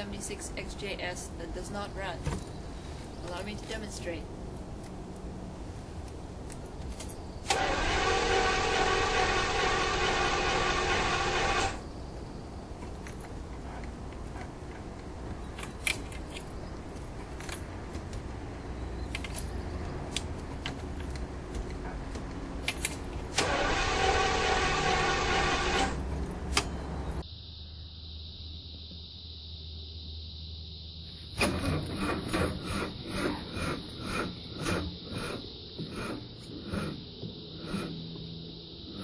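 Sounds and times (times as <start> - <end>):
car engine cranking: 6.5 - 11.8, 18.6 - 27.2, 31.4 - 37.0.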